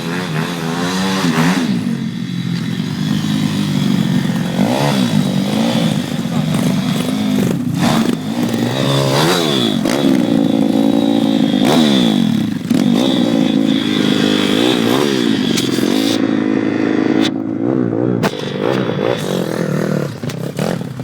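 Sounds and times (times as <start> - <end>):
small motorbike engine revving: 0.0 - 21.0.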